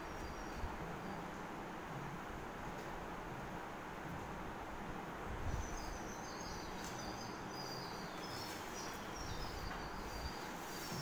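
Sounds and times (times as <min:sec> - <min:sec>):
small bird chirping: 0:00.0 - 0:01.2, 0:05.5 - 0:11.0
room noise: 0:00.0 - 0:11.0.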